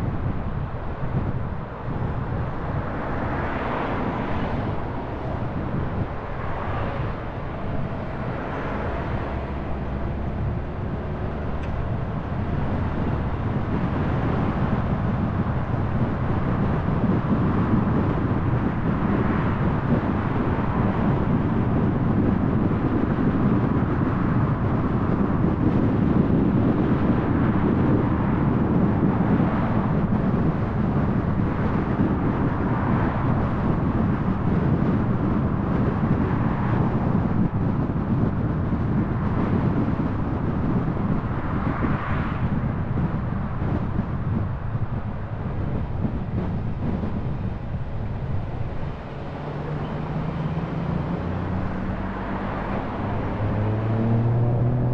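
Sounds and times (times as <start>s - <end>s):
car engine and tyre noise: 0.0s - 54.9s.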